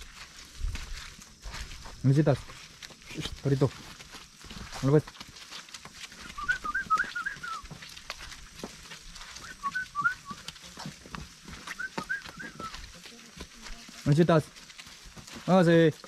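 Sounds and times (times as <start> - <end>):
songbird whistling: 6.2 - 7.7, 9.4 - 10.4, 11.7 - 12.8.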